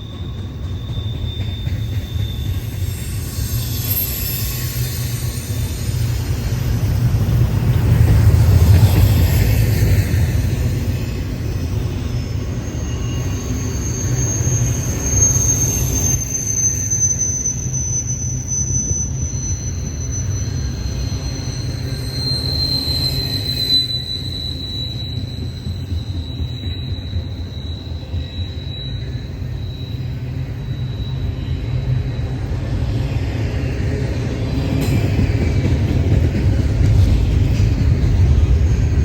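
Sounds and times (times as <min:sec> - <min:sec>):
train rumbling past: 0:00.0 - 0:39.0
wheels squealing on rail: 0:00.0 - 0:39.0.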